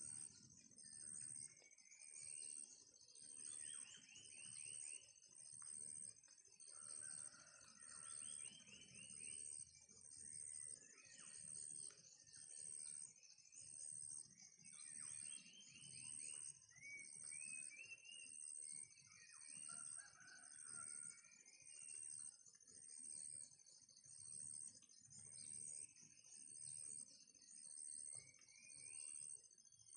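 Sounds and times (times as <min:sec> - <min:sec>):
faint chicken calls: 0:19.6 - 0:21.2.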